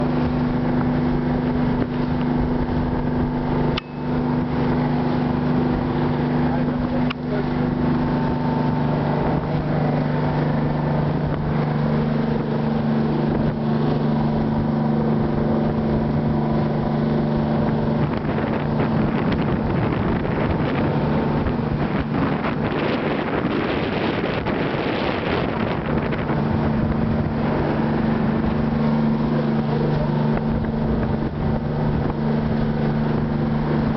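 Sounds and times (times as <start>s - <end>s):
boat engine humming: 0.0s - 33.9s
rushing wind: 0.0s - 33.9s
water rushing: 0.0s - 33.9s.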